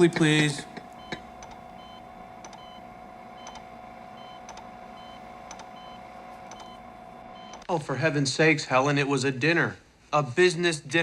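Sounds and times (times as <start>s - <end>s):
heart monitor beeping: 0.1s - 7.7s.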